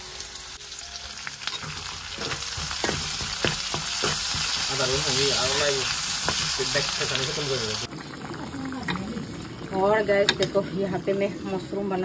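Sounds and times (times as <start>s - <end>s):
vegetables sizzling in oil: 0.0s - 12.0s
ladle clicking against pan: 10.2s - 10.6s.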